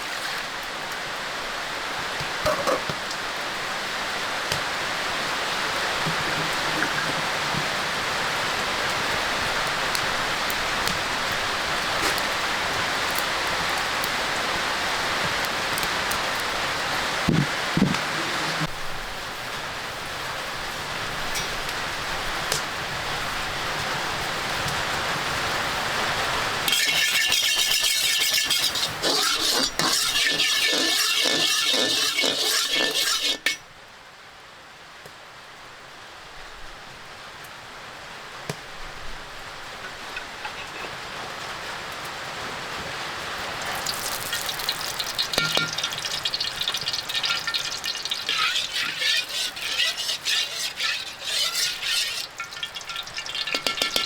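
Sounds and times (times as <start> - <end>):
food sizzling in a pan: 26.0 - 33.6, 43.5 - 54.0
utensil clinking against pan: 26.7 - 33.6, 43.7 - 54.0.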